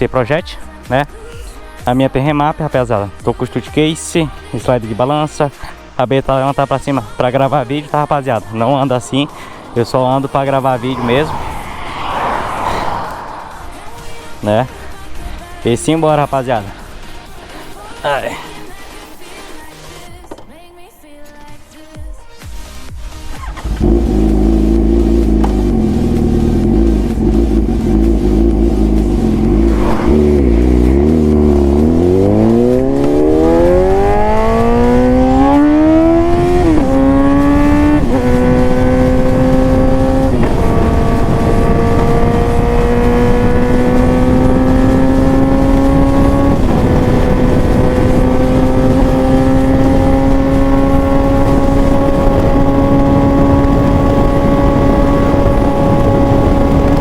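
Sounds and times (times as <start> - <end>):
motorcycle engine accelerating: 7.3 - 15.2, 23.4 - 57.0.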